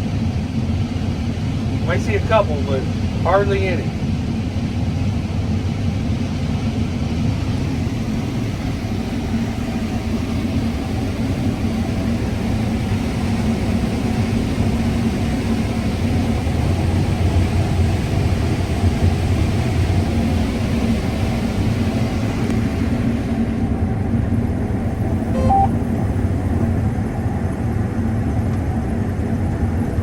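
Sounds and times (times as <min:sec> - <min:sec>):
combine harvester drone: 0:00.0 - 0:29.9.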